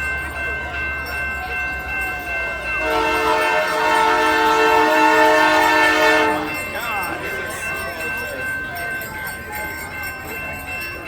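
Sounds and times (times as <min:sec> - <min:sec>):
locomotive air horn blast: 0:02.8 - 0:06.6.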